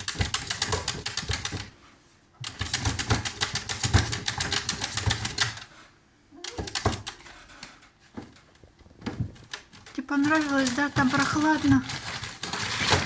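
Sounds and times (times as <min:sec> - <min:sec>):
fox making rapid clicking sounds: 0:00.0 - 0:01.7, 0:02.4 - 0:05.7, 0:06.4 - 0:07.7.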